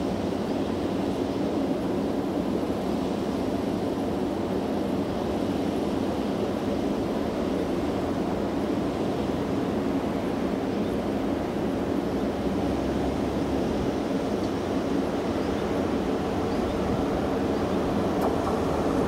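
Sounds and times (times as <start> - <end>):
electric train running on track: 3.3 - 19.0
wind on microphone: 15.4 - 19.0.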